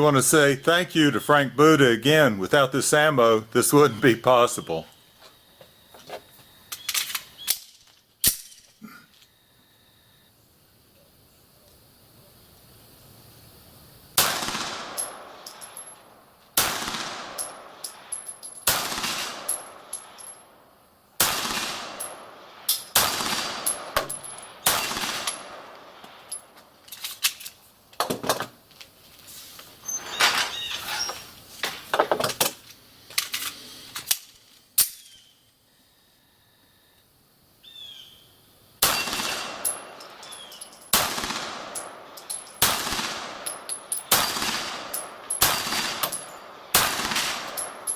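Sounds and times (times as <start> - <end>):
pistol shots: 14.2 - 15.8, 16.6 - 18.0, 18.6 - 20.1, 21.2 - 26.1, 38.8 - 40.0, 40.9 - 47.9
faint cracks and clinks: 25.3 - 28.9, 39.6 - 40.9, 41.8 - 42.6.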